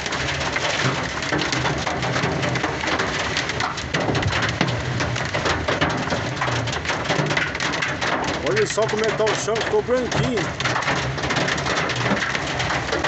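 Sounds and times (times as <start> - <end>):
hail drumming on truck cab: 0.0 - 13.0
heavy rain hissing: 8.0 - 13.0.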